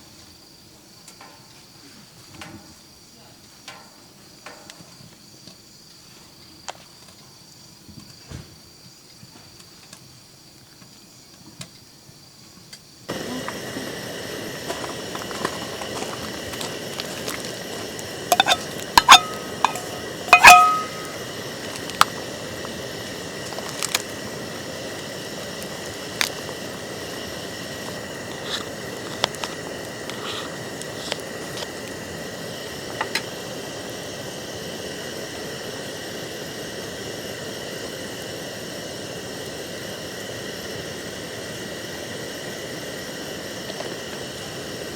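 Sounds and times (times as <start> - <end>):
steady hiss: 12.9 - 44.9
dishes clinking: 18.3 - 21.3.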